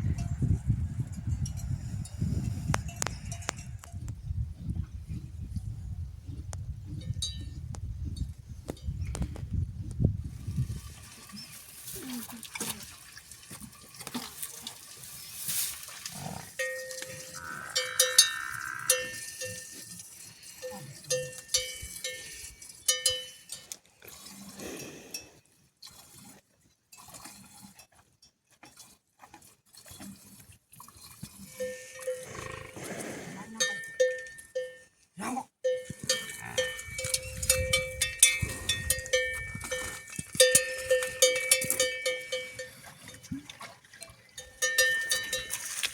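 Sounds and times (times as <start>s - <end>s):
livestock bell clanking: 1.0s - 4.0s, 7.0s - 7.5s, 16.6s - 23.7s, 31.6s - 32.4s, 33.6s - 35.0s, 35.6s - 43.2s, 44.4s - 45.8s.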